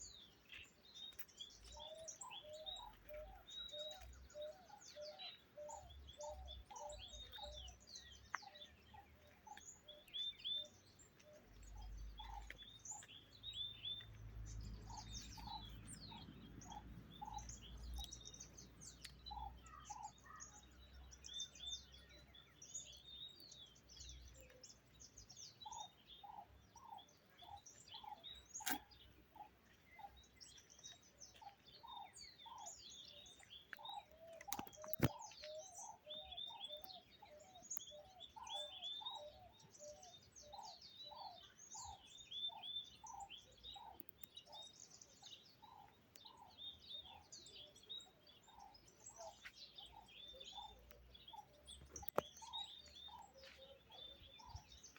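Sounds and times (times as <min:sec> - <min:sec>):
birds chirping: 0:00.0 - 0:54.9
sharp clicks: 0:34.4 - 0:35.2.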